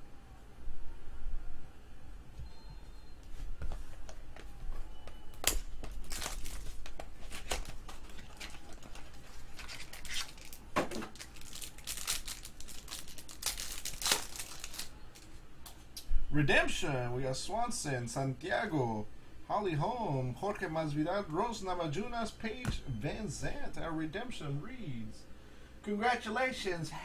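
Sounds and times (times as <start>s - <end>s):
plastic packaging crinkling and tearing: 5.4s - 15.3s.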